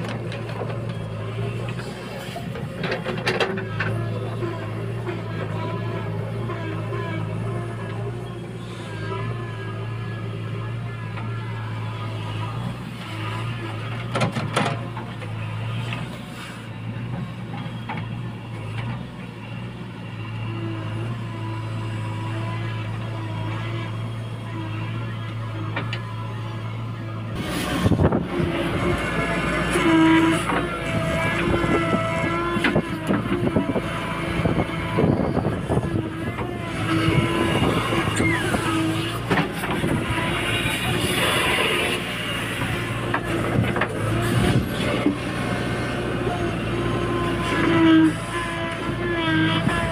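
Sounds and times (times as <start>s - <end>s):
diesel engine running: 0.0s - 49.9s
knocks and clanks: 14.0s - 15.0s.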